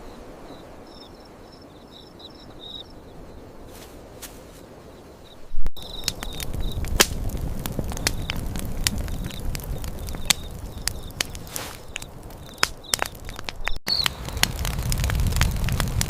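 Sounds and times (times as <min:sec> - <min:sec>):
crickets chirping: 0:00.0 - 0:06.8, 0:09.1 - 0:13.4
campfire crackling and popping: 0:05.7 - 0:16.0.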